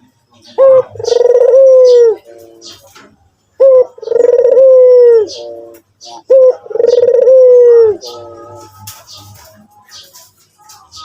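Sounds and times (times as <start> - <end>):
dove cooing: 0.4 - 9.4.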